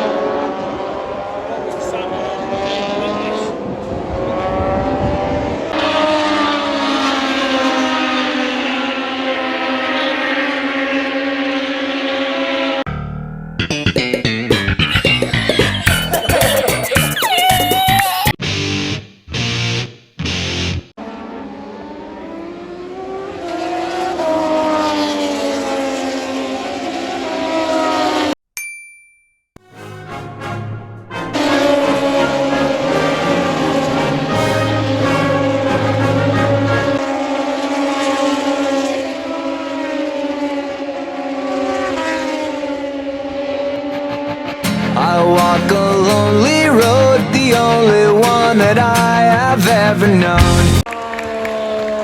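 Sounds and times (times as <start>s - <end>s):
racing motorcycle engines revving: 0.0s - 13.0s, 21.0s - 28.4s, 31.2s - 49.0s.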